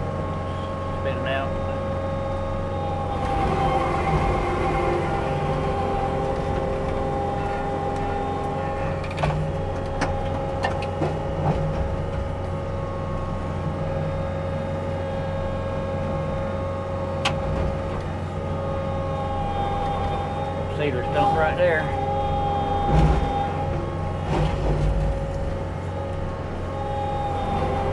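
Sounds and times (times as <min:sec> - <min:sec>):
heavy machine diesel engine: 0:00.0 - 0:27.9.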